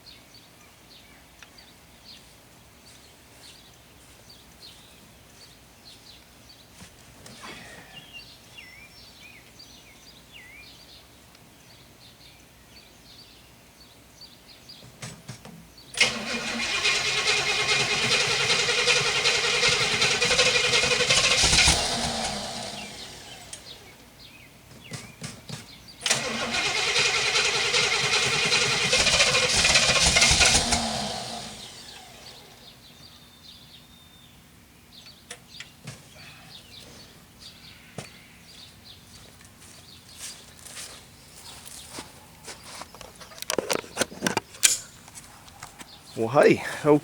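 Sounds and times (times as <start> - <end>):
car engine cranking: 16.0 - 24.0, 26.0 - 32.7.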